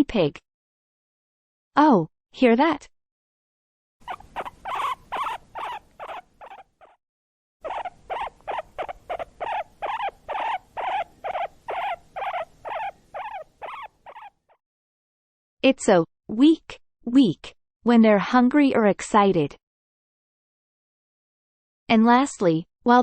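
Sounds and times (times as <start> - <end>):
guinea pig wheeking: 4.0 - 7.0, 7.6 - 14.6.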